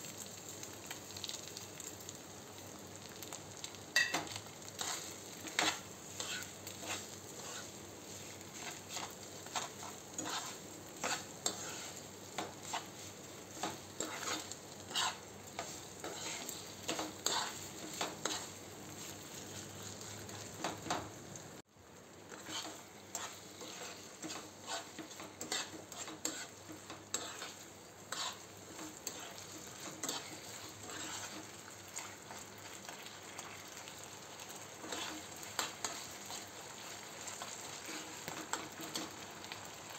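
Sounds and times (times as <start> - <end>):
potato sizzling in a pan: 0.0 - 39.9
spoon scraping and clicking on pan: 4.0 - 7.7, 8.6 - 12.9, 13.6 - 18.5, 22.3 - 32.4.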